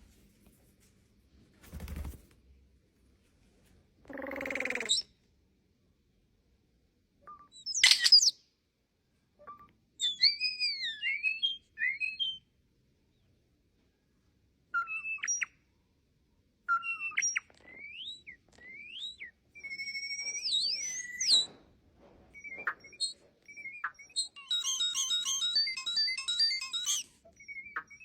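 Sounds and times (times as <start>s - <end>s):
starling whistling song: 9.5s - 12.5s, 14.7s - 15.6s, 16.7s - 21.6s, 22.4s - 28.0s.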